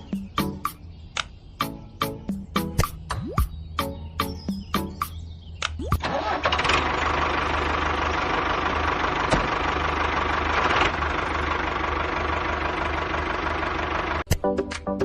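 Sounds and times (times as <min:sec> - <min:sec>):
engine idling: 0:06.0 - 0:14.3.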